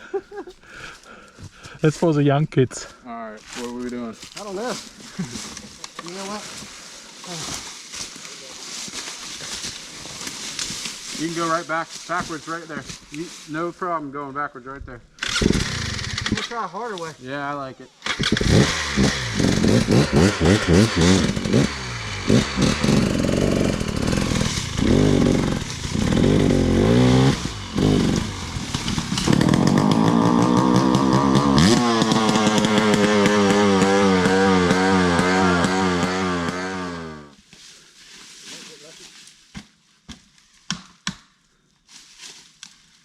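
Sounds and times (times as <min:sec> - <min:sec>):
dirt bike engine revving: 0:15.2 - 0:16.8, 0:18.0 - 0:37.4.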